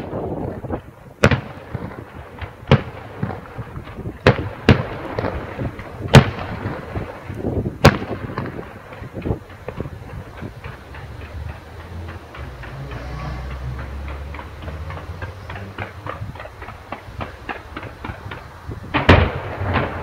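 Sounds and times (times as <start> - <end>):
fireworks bangs: 0.0 - 20.0
fireworks pops and crackles: 0.0 - 20.0.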